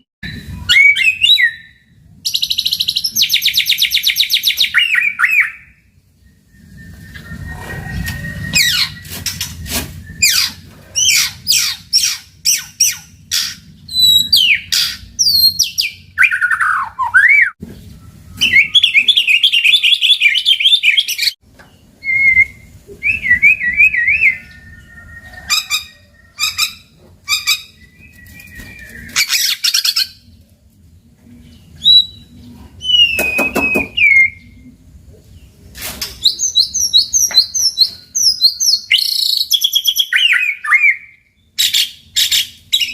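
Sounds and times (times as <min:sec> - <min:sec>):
bird singing whistled phrases and trills: 0:00.2 - 0:09.4, 0:13.9 - 0:17.6, 0:18.3 - 0:21.4, 0:22.0 - 0:30.2, 0:31.7 - 0:34.7, 0:36.2 - 0:42.9.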